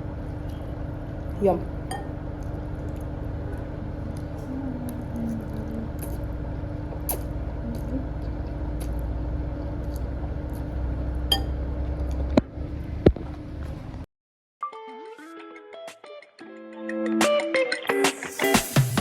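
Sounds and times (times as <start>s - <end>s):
low kitchen hum: 0.0s - 14.1s.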